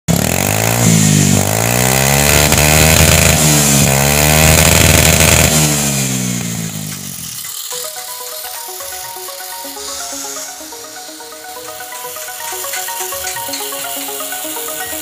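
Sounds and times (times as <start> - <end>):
scooter engine revving: 0.1 - 7.7.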